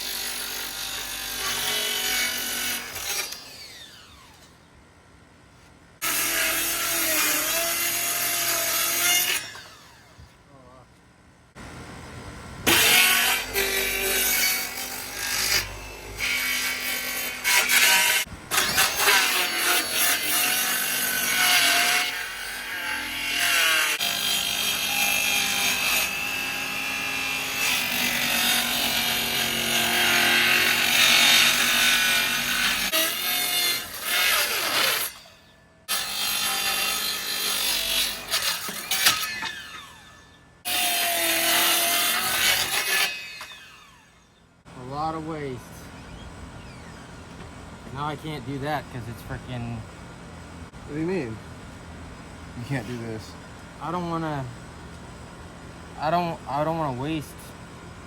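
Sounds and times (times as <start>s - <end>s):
circular saw cutting plywood: 0.0s - 4.6s, 6.0s - 10.3s, 12.6s - 44.2s.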